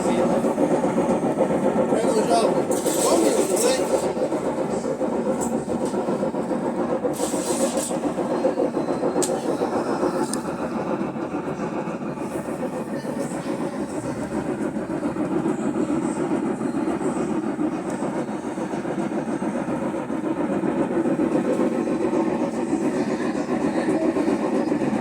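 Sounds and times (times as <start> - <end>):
washing machine grinding: 0.0 - 16.2.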